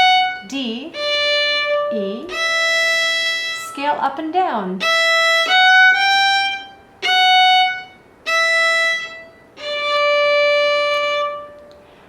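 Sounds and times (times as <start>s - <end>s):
solo violin melody: 0.0s - 4.1s, 4.7s - 11.8s.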